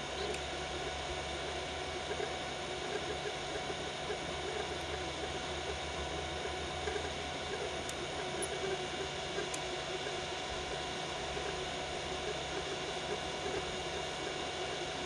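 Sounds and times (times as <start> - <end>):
fan hum: 0.0 - 15.0.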